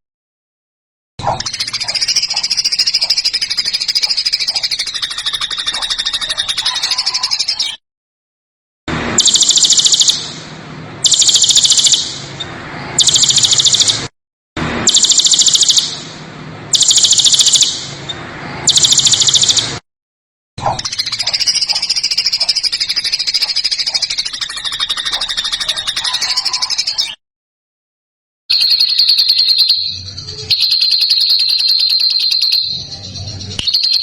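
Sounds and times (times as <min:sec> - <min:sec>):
songbird chattering trill: 0:01.3 - 0:07.8, 0:09.2 - 0:10.4, 0:11.0 - 0:12.2, 0:13.0 - 0:14.0, 0:16.7 - 0:17.9, 0:18.7 - 0:19.7, 0:20.7 - 0:27.2, 0:28.5 - 0:34.0
songbird rattling call: 0:01.3 - 0:07.8, 0:09.2 - 0:10.4, 0:11.0 - 0:12.3, 0:13.0 - 0:14.1, 0:14.9 - 0:16.1, 0:16.7 - 0:17.9, 0:20.6 - 0:27.1, 0:28.5 - 0:34.0.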